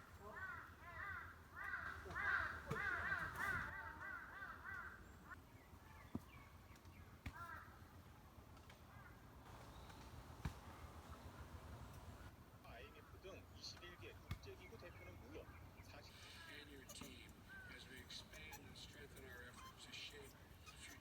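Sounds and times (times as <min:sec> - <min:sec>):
crow cawing: 0:00.0 - 0:05.1, 0:07.3 - 0:07.8, 0:08.9 - 0:09.2.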